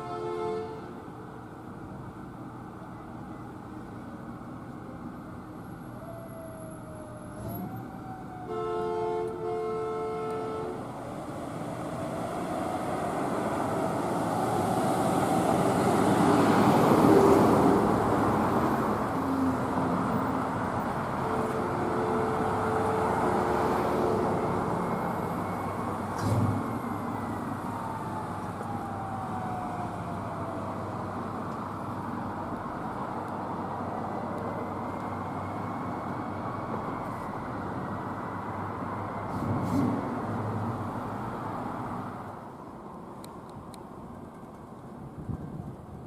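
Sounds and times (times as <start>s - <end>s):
fire truck air horn: 0.0s - 1.1s, 8.3s - 10.9s, 21.0s - 24.2s
vehicle engine and road noise: 0.0s - 46.0s
siren wailing: 5.8s - 9.2s, 26.7s - 31.4s.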